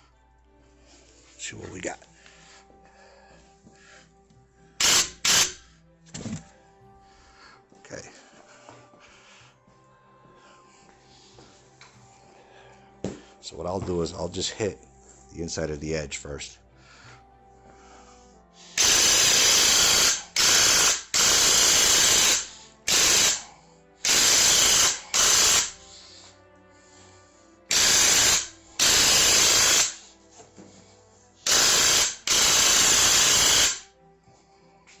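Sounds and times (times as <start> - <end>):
paint sprayer hissing bursts: 4.8 - 5.6, 18.8 - 23.4, 24.0 - 25.8, 27.7 - 30.0, 31.5 - 33.8.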